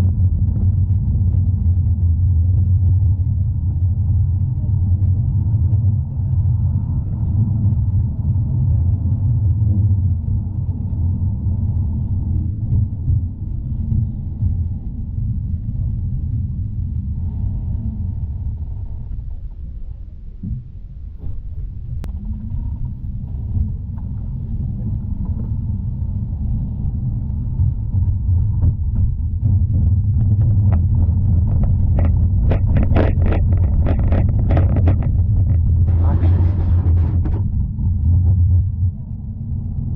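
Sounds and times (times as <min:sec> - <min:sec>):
tram rumbling on rails: 0:03.2 - 0:39.9
tram rumbling on tracks: 0:23.4 - 0:38.1.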